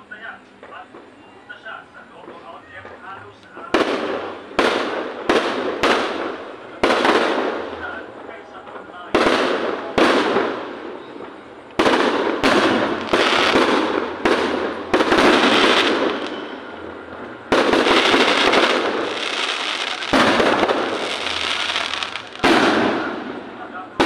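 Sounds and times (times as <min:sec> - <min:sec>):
firework shells bursting: 0:09.1 - 0:24.0.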